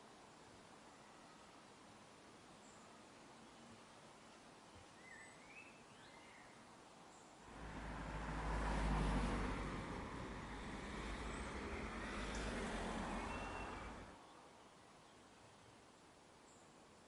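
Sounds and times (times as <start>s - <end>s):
rushing noise with deep rumble: 7.5s - 14.1s
bird chirp: 10.7s - 15.3s.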